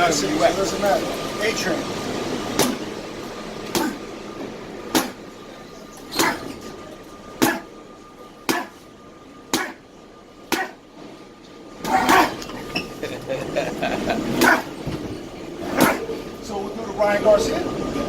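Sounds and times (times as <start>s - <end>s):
punches hitting training gear: 2.6s - 2.9s, 3.7s - 4.0s, 4.9s - 5.2s, 6.1s - 6.5s, 7.4s - 7.7s, 8.4s - 8.8s, 9.5s - 9.8s, 10.5s - 10.8s, 11.8s - 12.4s, 14.4s - 14.7s, 15.7s - 16.0s.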